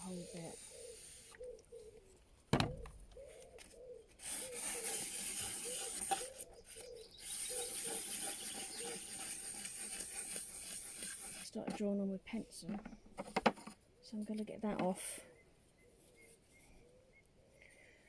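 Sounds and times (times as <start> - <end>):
sandpaper scraping wood: 0.0 - 1.4, 4.2 - 11.6.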